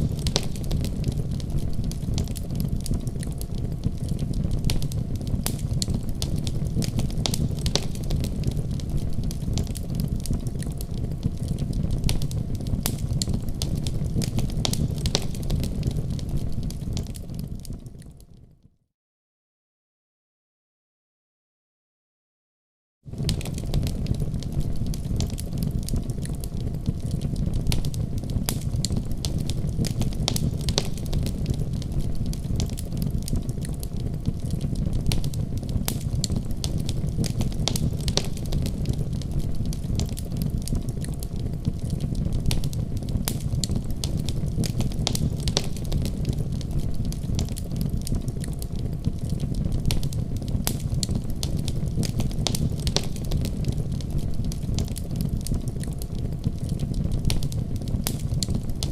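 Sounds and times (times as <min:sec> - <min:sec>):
wood fire crackling: 0:00.0 - 0:18.5, 0:23.1 - 0:58.9.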